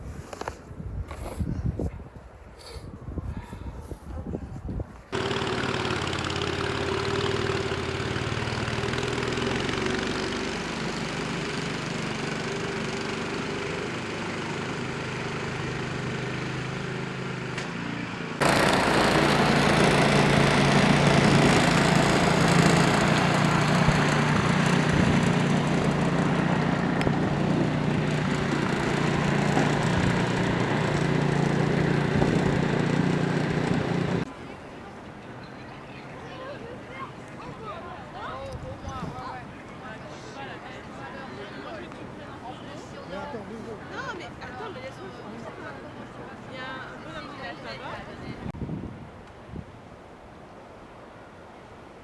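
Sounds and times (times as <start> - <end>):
engine running: 5.1 - 34.3
deep engine hum: 5.2 - 16.8, 18.4 - 34.3.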